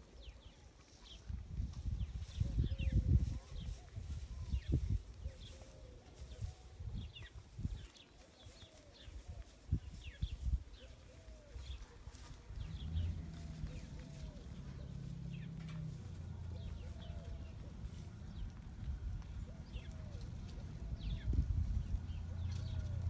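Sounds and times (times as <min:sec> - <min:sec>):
small birds chirping: 0:00.0 - 0:23.0
low rumble: 0:12.5 - 0:23.0.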